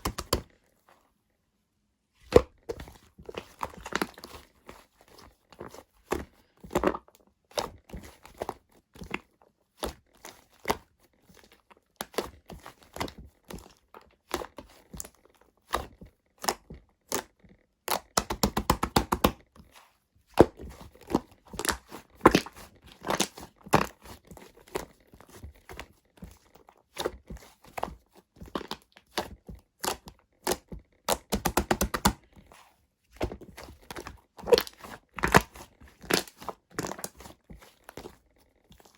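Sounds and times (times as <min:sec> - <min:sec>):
slime squishing pops: 0:28.5 - 0:32.2.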